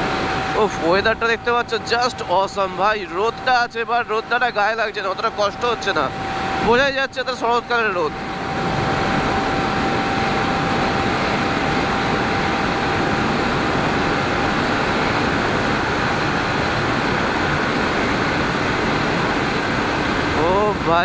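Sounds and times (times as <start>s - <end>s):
wind rushing: 8.1s - 20.8s.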